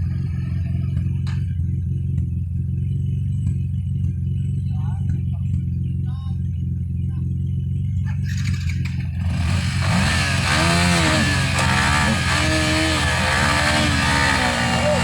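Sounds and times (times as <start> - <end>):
dirt bike engine revving: 8.3 - 15.0.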